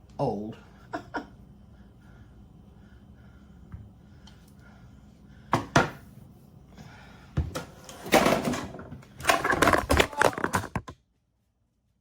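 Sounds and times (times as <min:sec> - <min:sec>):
dishes clattering and scraping: 0:08.0 - 0:10.9.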